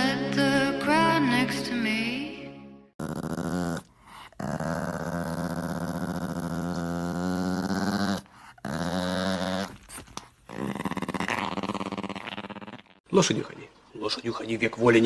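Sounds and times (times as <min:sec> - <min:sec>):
dog growling: 0:03.0 - 0:13.1.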